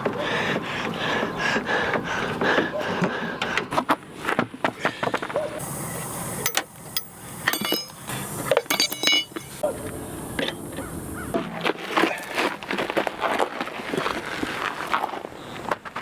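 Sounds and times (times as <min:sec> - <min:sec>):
ringing metallic clinks: 0:06.4 - 0:09.6
metal tools clinking and knocking: 0:06.4 - 0:09.7.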